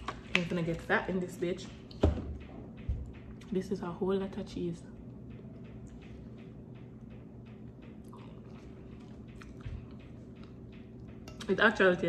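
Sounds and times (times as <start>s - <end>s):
person chewing: 8.0s - 10.6s.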